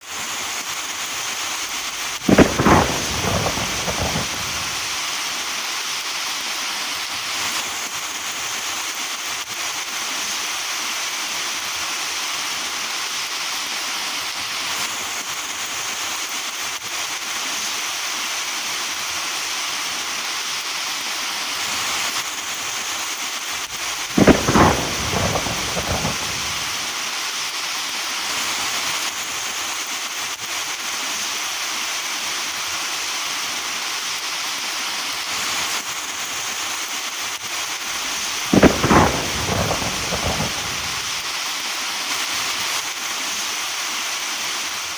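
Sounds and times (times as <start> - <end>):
steady rain: 0.0 - 44.9
thunder claps: 1.6 - 5.1, 23.6 - 26.9, 37.9 - 41.3.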